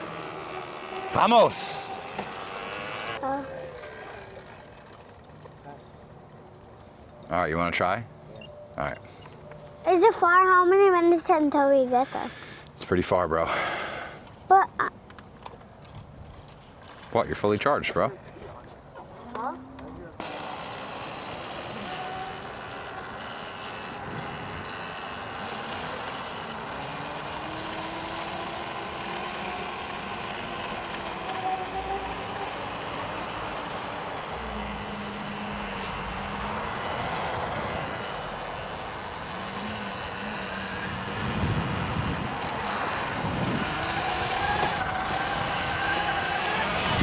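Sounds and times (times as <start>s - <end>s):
electric motor whine: 0.0s - 5.1s, 20.2s - 47.0s
wind and tyre noise: 21.2s - 47.0s.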